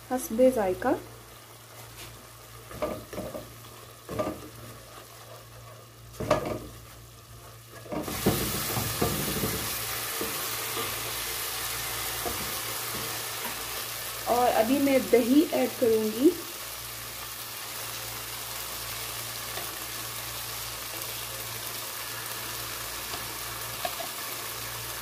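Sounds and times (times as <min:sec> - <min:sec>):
masala sizzling in oil: 0:00.0 - 0:25.0
spatula scraping a pan: 0:04.1 - 0:11.1.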